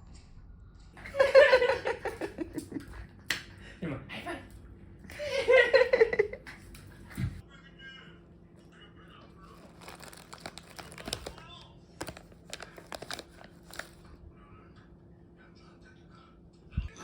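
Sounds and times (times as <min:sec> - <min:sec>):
person laughing: 0:01.0 - 0:03.0, 0:05.1 - 0:06.6.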